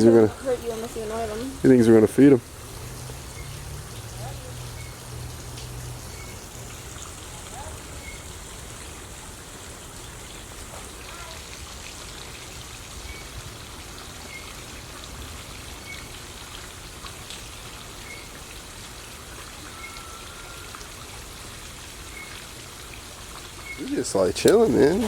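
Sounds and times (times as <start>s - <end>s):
running water splashing: 0.0s - 25.0s.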